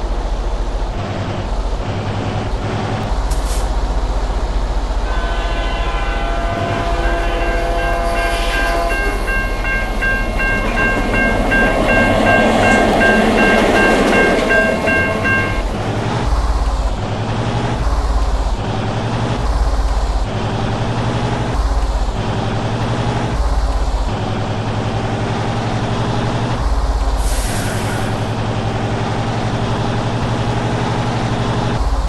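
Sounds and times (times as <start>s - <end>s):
heavy vehicles rumbling: 0.0s - 32.0s
rushing noise: 0.0s - 32.0s
multi-note air horn: 5.0s - 15.6s, 27.2s - 28.4s.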